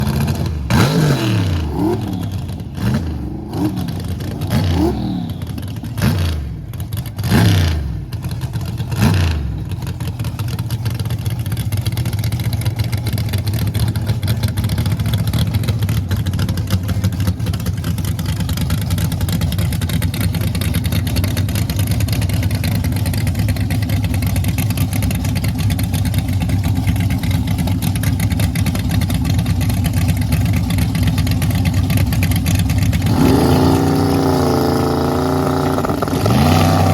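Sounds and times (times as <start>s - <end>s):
car engine revving: 0.0s - 10.6s, 27.9s - 36.9s.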